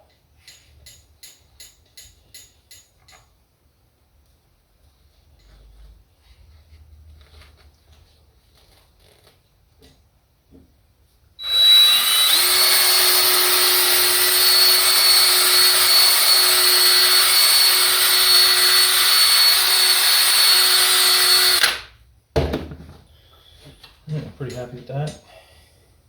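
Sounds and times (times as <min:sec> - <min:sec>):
handheld power tool whining: 0:11.4 - 0:21.9.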